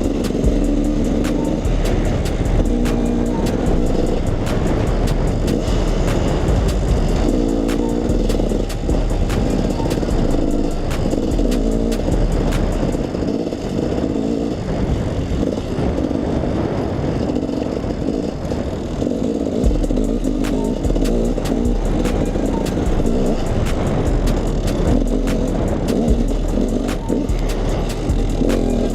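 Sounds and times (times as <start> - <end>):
music with steady beat: 0.0 - 13.2, 19.6 - 28.9
dirt bike engine revving: 0.0 - 28.9.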